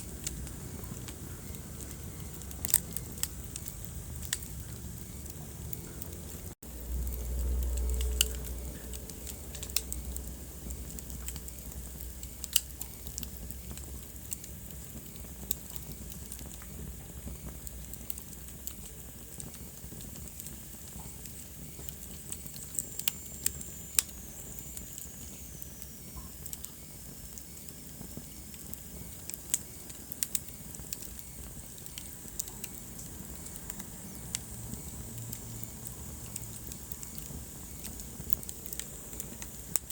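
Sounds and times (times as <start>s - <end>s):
low rumble: 0.0s - 12.2s
soft steady hiss: 0.0s - 39.9s
wood fire crackling: 0.0s - 39.9s.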